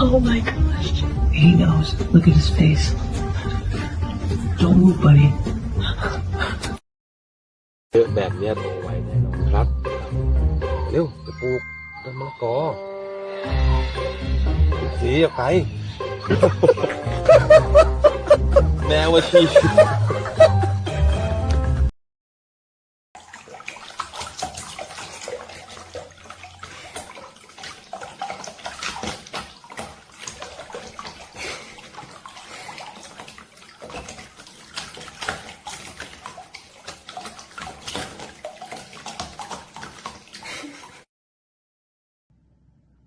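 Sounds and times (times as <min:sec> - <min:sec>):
water splashing and sloshing: 0:13.8 - 0:20.5, 0:23.2 - 0:41.1.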